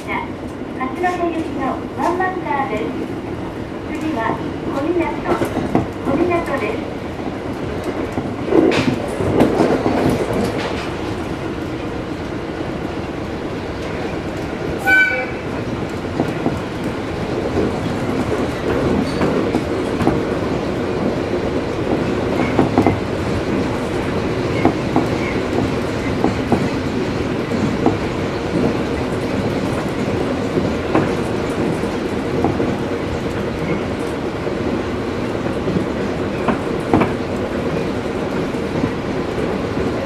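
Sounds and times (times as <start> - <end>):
train running rumble: 0.0 - 40.0
train horn: 14.8 - 15.5.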